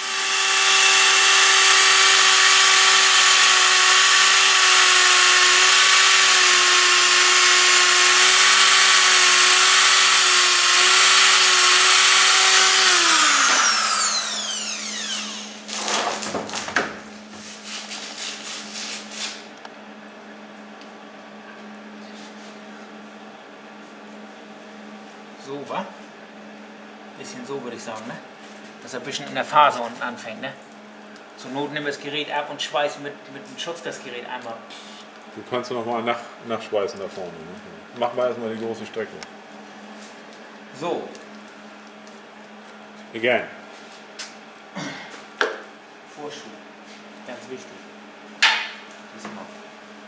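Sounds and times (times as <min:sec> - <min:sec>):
electric grinder running: 0:00.0 - 0:15.8.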